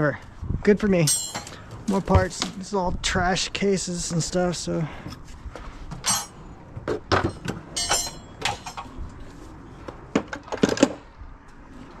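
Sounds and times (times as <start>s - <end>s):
metal parts clinking: 1.0s - 2.0s, 6.0s - 6.4s, 7.2s - 8.9s.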